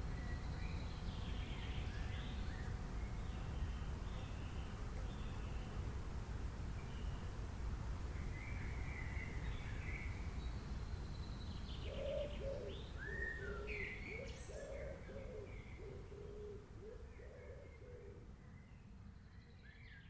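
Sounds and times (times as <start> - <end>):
lower bird call: 11.8 - 18.6.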